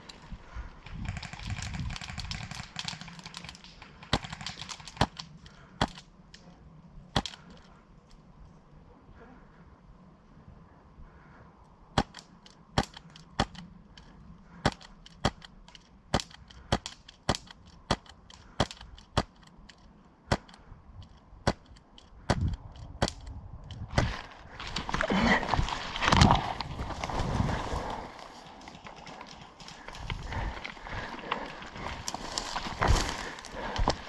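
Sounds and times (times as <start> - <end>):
rustling noise: 23.7 - 34.0.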